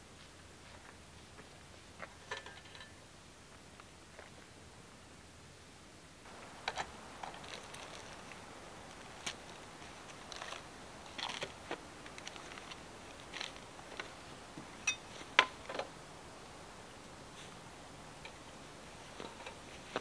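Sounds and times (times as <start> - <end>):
low hiss: 0.0 - 20.0
campfire crackling and popping: 6.3 - 20.0.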